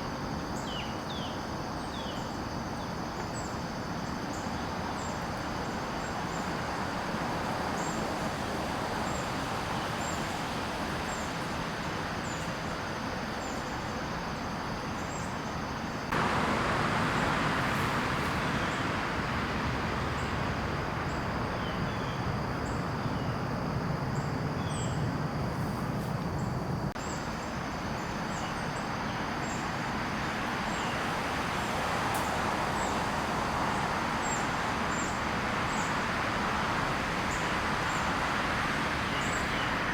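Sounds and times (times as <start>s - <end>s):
high insect drone: 0.0s - 39.9s
distant road traffic rushing: 1.8s - 39.9s
small birds chirping: 16.1s - 27.4s.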